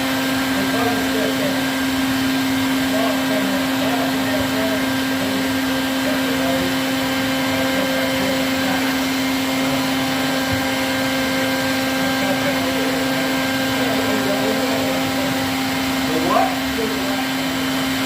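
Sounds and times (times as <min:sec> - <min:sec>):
vacuum motor humming: 0:00.0 - 0:18.0.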